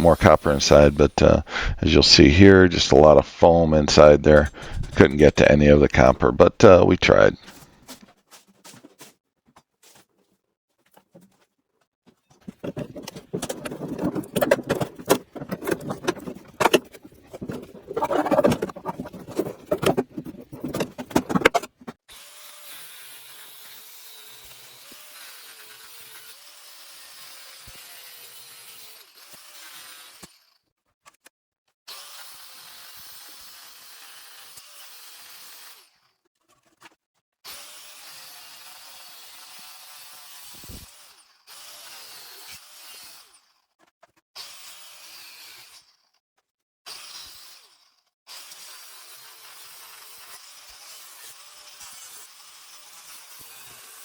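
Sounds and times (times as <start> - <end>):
refrigerator parts knocking and rattling: 12.4 - 22.0.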